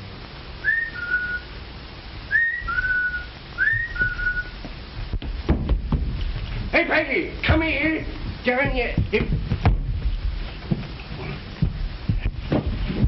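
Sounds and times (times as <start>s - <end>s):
old soundtrack hiss: 0.0s - 13.0s
person whistling two-note call: 0.6s - 1.4s, 2.3s - 4.6s.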